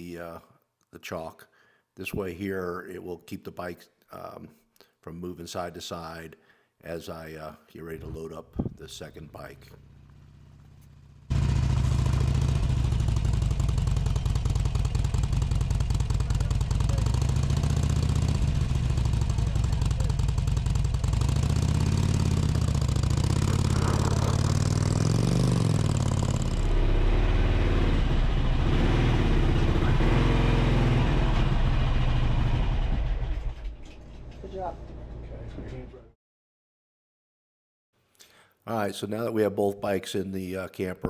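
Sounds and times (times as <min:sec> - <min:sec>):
motorcycle engine revving: 0:09.7 - 0:33.7.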